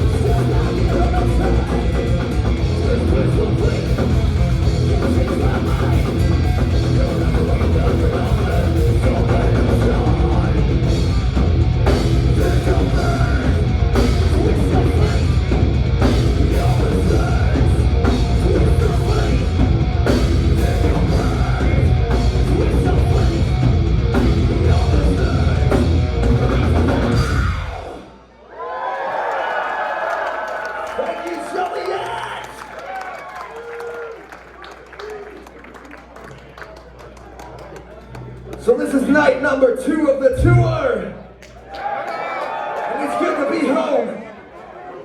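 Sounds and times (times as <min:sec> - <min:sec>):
thrash metal band playing: 0:00.0 - 0:28.1.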